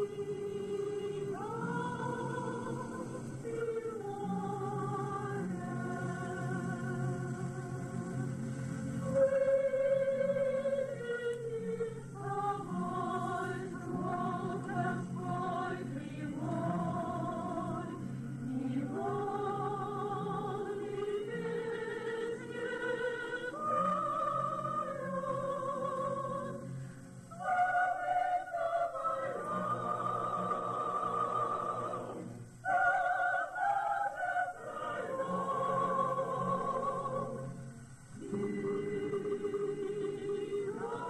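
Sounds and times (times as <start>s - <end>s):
man and woman singing duet: 0.0s - 7.9s, 9.1s - 26.8s, 27.4s - 37.6s.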